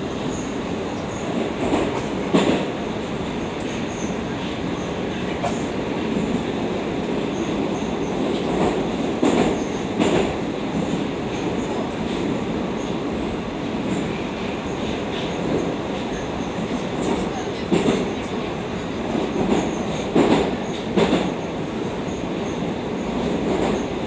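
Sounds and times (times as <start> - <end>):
wheels rumbling on rail: 0.0 - 24.0
train wheel knocks: 1.6 - 2.7, 19.4 - 21.4.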